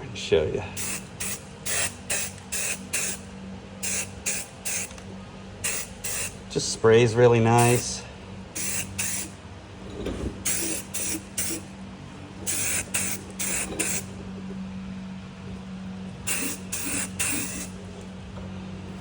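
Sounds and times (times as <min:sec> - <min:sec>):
steady low hum: 0:00.0 - 0:19.0
aerosol can spraying: 0:00.8 - 0:03.2, 0:03.8 - 0:05.0, 0:05.6 - 0:06.4, 0:07.6 - 0:08.0, 0:08.6 - 0:09.4, 0:10.4 - 0:11.6, 0:12.5 - 0:14.1, 0:16.3 - 0:17.8.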